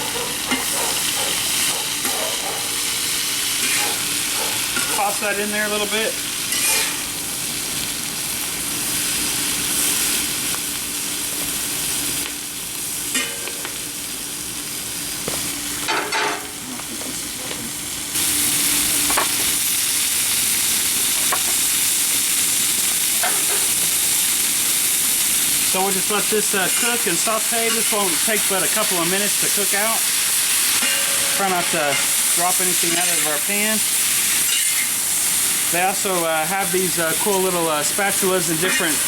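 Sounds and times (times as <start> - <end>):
food sizzling in a wok: 0.0 - 39.0.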